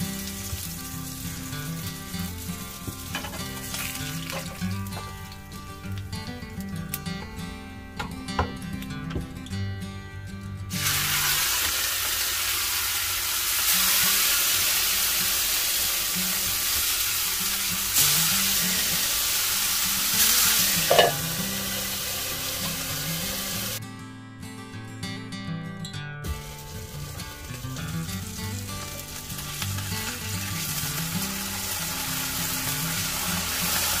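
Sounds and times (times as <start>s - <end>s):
fish sizzling in oil: 0.0s - 5.5s, 10.8s - 23.8s, 26.3s - 34.0s.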